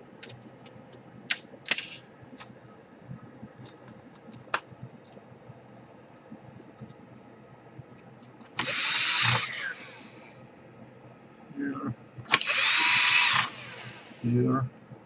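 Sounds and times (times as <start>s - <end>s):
powered screwdriver driving screw: 8.6s - 10.1s, 12.3s - 14.2s.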